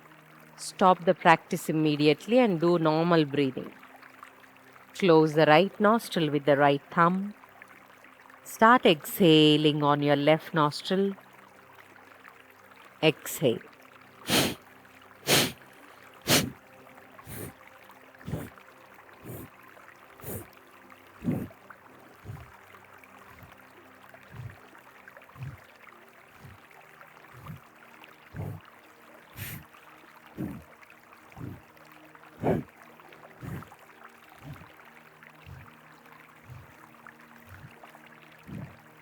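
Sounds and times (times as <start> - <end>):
forceful nasal exhalations: 14.3 - 14.6, 15.2 - 15.6, 16.3 - 16.6, 17.3 - 17.6, 18.2 - 18.5, 19.2 - 19.5, 20.2 - 20.5, 21.2 - 21.5, 22.2 - 22.5, 24.3 - 24.6, 25.4 - 25.7, 27.3 - 27.6, 28.3 - 28.6, 29.4 - 29.7, 30.4 - 30.6, 31.4 - 31.6, 32.4 - 32.7, 33.4 - 33.7, 34.4 - 34.7, 35.4 - 35.7, 36.4 - 36.8
river rushing: 15.3 - 15.6, 16.3 - 16.5.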